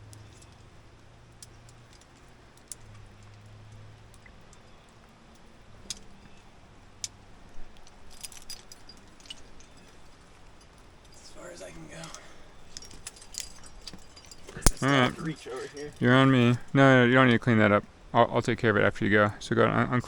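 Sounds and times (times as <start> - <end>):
metal climbing gear clinking: 0.0 - 0.7, 4.5 - 16.8.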